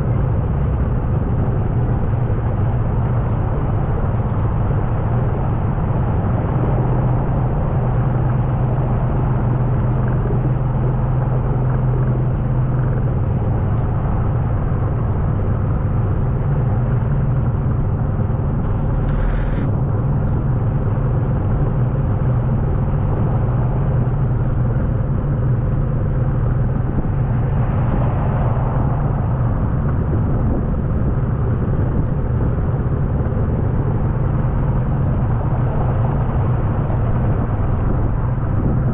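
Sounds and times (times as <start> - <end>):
vehicle engine rumbling: 0.0 - 38.9.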